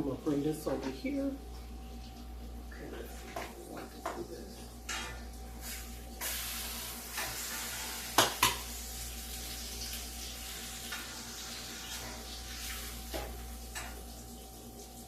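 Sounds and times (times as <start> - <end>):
hot pan sizzling: 0.0 - 15.0
utensil clinking against dishes: 4.8 - 5.3.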